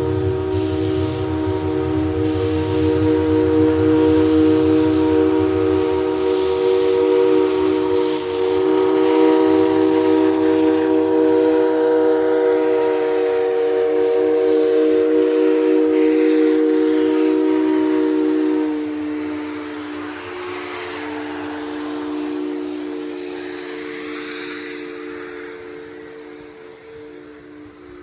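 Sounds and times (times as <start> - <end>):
hiss of steam: 0.0 - 28.0
steam locomotive whistle: 0.0 - 28.0.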